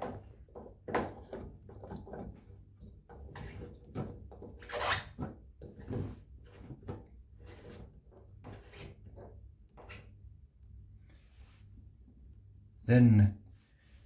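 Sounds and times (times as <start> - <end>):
plastic scraping and knocking: 0.0 - 10.1.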